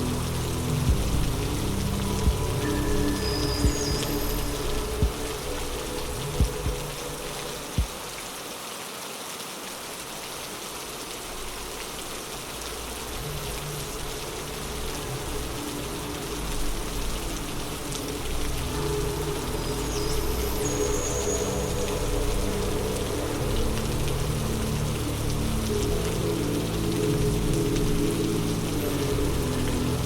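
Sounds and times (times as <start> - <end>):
low rumble: 0.0 - 7.9
steady rain falling: 0.0 - 30.0.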